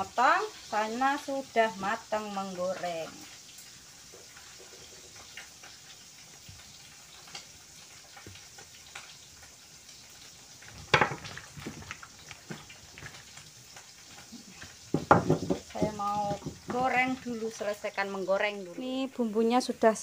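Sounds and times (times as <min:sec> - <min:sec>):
fish frying in oil: 0:00.0 - 0:20.0
light knocks: 0:14.9 - 0:17.0.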